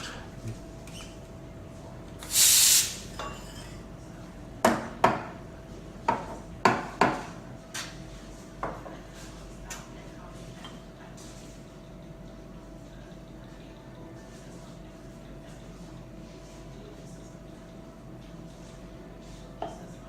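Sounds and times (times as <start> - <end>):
faint machine hum: 0.0 - 20.0
steam wand hissing: 2.2 - 3.0
dishes clinking and knocking: 3.2 - 3.8, 6.0 - 7.9.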